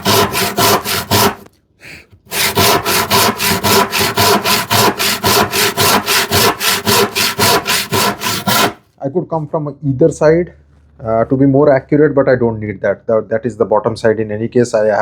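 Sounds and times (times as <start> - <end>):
hand saw cutting wood: 0.0 - 1.5, 2.2 - 8.8.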